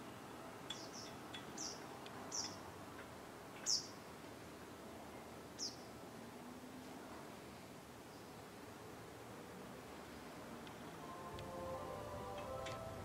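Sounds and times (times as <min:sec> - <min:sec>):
small bird chirping: 0:00.7 - 0:02.6, 0:03.6 - 0:04.0, 0:05.6 - 0:05.9.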